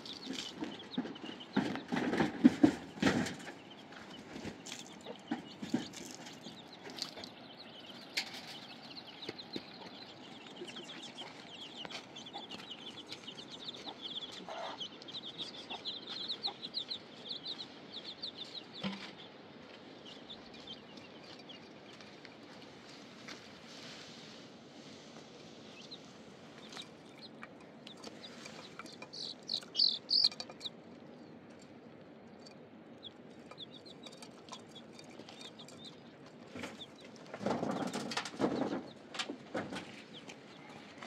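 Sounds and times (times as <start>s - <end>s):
birds chirping: 0.0s - 23.6s, 25.0s - 41.0s
scattered knocks: 0.5s - 3.7s.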